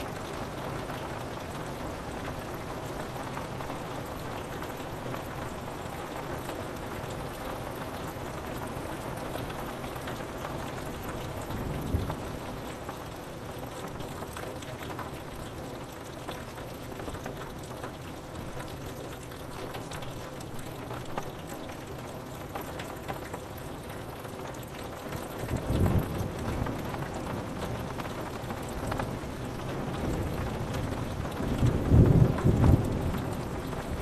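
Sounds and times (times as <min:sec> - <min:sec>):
rain on window glass: 0:00.0 - 0:34.0
thunder rumbling: 0:11.4 - 0:12.7, 0:25.5 - 0:27.6, 0:29.5 - 0:34.0.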